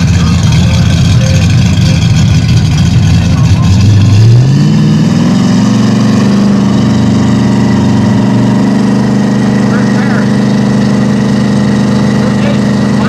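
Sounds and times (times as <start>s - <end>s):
drag race car engine rumbling: 0.0s - 13.0s.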